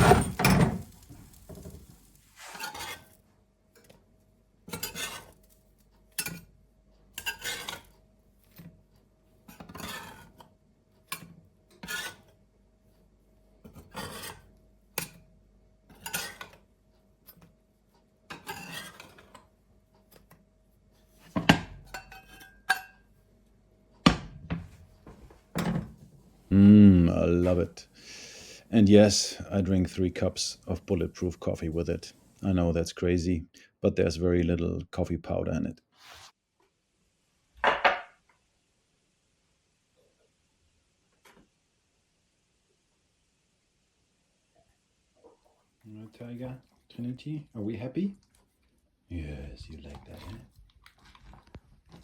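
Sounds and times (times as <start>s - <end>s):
rasping kitchen scrapes: 0.0s - 3.2s, 4.7s - 5.4s, 9.6s - 10.4s, 11.8s - 12.3s, 13.7s - 14.5s, 18.4s - 19.3s, 36.0s - 36.4s.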